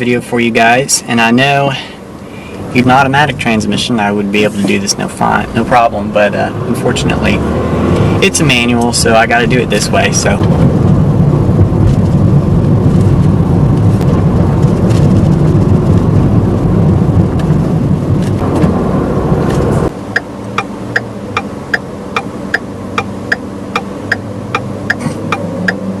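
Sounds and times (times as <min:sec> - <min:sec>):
car engine and road noise: 0:00.0 - 0:26.0
car engine idling hum: 0:00.0 - 0:26.0
turn signal ticking: 0:20.1 - 0:26.0.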